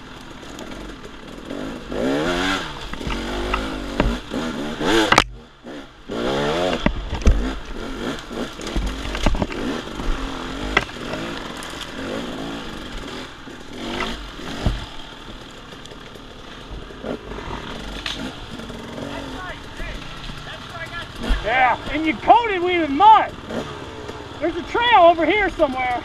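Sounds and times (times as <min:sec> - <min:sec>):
dirt bike engine revving: 0:00.0 - 0:26.0
sharp knocks and clatter: 0:02.5 - 0:05.4, 0:06.4 - 0:22.3.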